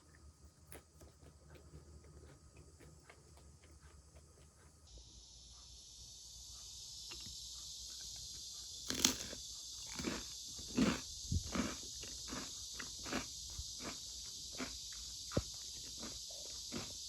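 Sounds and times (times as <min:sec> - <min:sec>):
cicadas buzzing: 0:00.0 - 0:17.0
loud crunches: 0:08.9 - 0:17.0.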